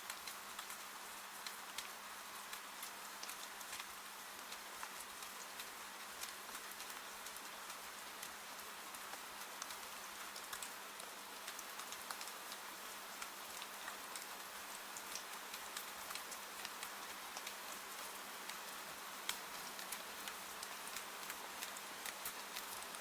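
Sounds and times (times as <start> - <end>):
rain falling: 0.0 - 23.0
raindrop ticks: 0.1 - 23.0.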